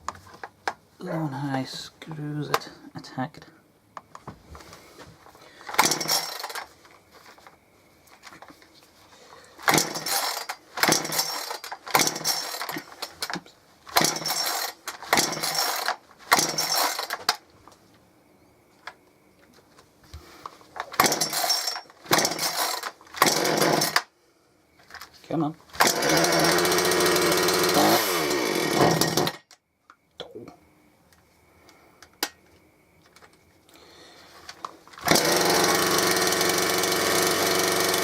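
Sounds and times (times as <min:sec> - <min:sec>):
chainsaw starter cord rips: 0:05.6 - 0:06.7, 0:09.6 - 0:17.4, 0:20.8 - 0:24.1, 0:25.7 - 0:29.6, 0:34.5 - 0:38.0
engine turning over: 0:05.7 - 0:06.7, 0:09.6 - 0:17.4, 0:20.9 - 0:24.1, 0:25.8 - 0:29.4, 0:35.0 - 0:38.0.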